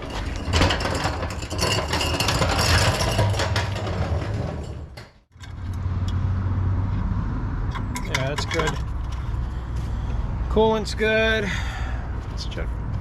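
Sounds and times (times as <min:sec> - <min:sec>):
clattering and handling noise: 0:00.0 - 0:05.8, 0:07.7 - 0:09.9.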